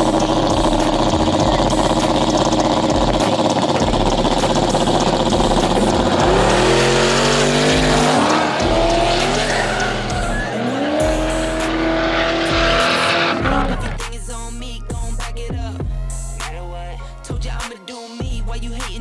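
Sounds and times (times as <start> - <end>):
race car engine at full throttle: 0.0 - 14.2.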